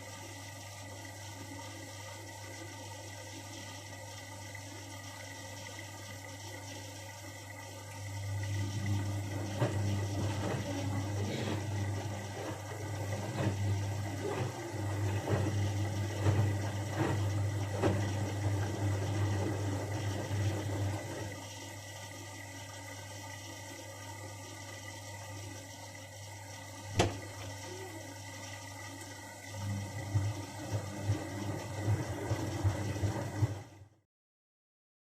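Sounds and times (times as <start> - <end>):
washing machine humming: 0.0 - 34.0
water sloshing and gurgling: 0.0 - 34.0
washing machine knocks: 9.2 - 19.5, 26.9 - 27.5.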